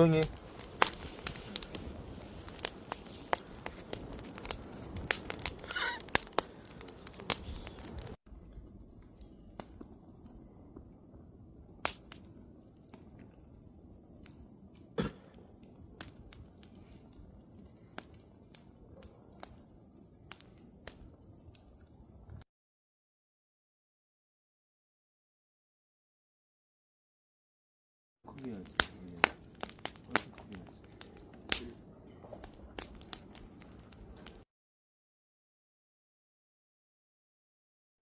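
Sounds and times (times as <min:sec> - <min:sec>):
wood fire crackling and popping: 0:00.0 - 0:22.4, 0:28.3 - 0:34.5.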